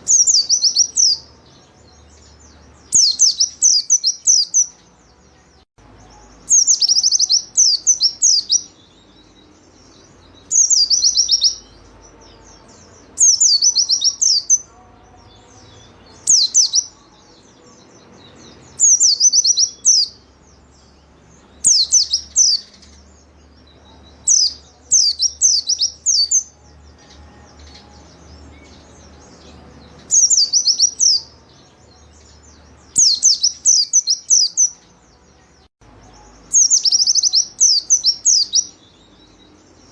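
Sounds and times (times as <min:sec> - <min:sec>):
bird twittering: 0:06.4 - 0:08.7, 0:10.4 - 0:11.8, 0:21.6 - 0:23.0.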